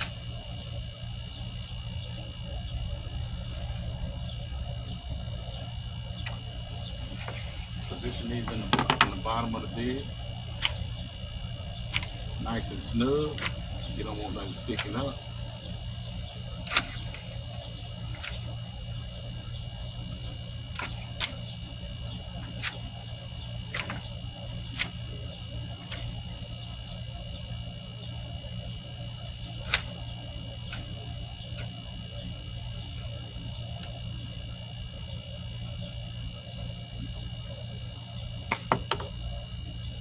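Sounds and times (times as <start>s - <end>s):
tree limbs snapping and cracking: 5.6s - 9.5s, 13.2s - 15.2s, 16.6s - 18.6s, 20.6s - 21.6s, 22.3s - 27.0s, 29.6s - 31.9s, 38.4s - 39.4s.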